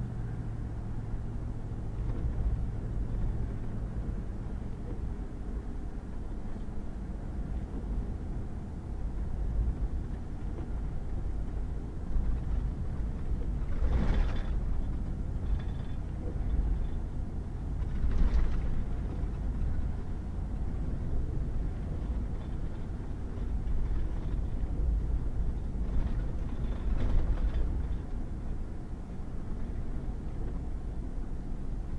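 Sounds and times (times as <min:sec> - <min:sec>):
truck driving on gravel: 0:00.0 - 0:31.9.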